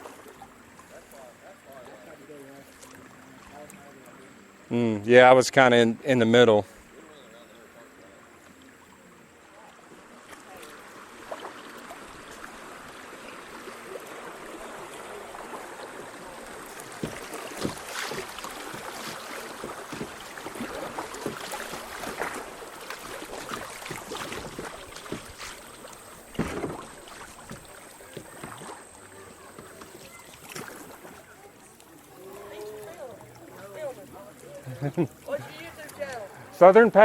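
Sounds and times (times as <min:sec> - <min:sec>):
paddle splashes and knocks: 0:00.0 - 0:01.2, 0:09.8 - 0:36.3
water running: 0:10.5 - 0:37.0.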